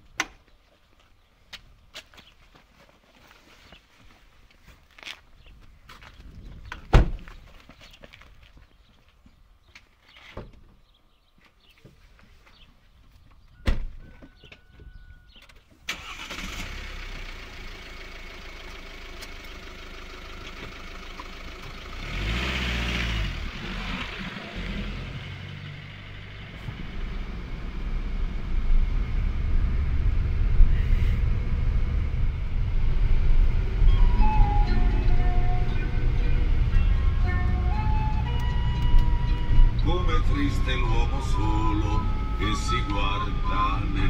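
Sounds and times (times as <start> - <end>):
car engine starting and running: 15.8 - 44.0.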